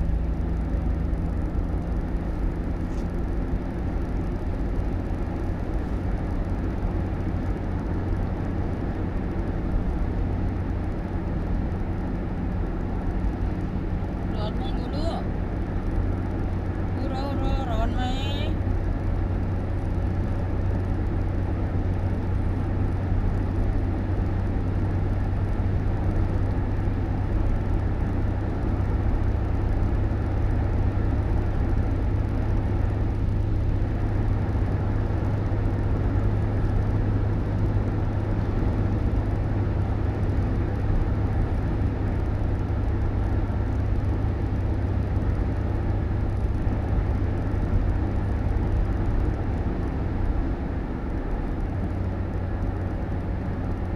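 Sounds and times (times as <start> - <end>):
vehicle rumbling: 0.0 - 53.9.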